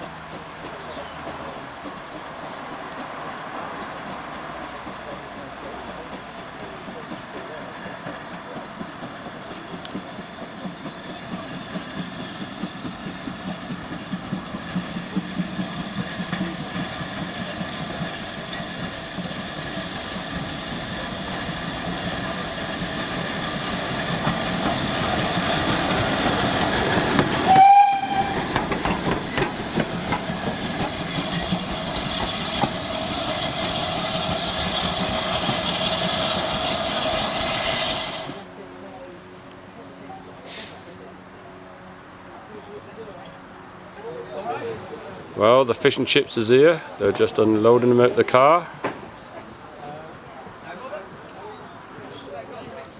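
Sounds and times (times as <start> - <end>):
train wheels clicking over rail joints: 0.0 - 38.5
steam train whistle: 26.8 - 28.8.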